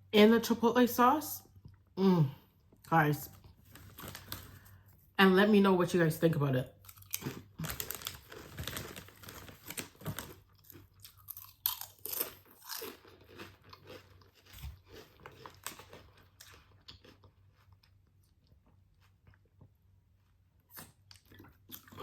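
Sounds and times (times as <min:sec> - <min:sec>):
chewing crunchy food: 0:06.8 - 0:22.0.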